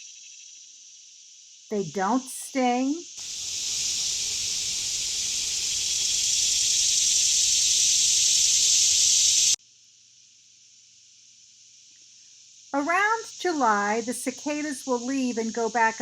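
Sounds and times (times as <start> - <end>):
cicadas buzzing: 0.0 - 16.0
faint cicada buzz: 0.0 - 16.0.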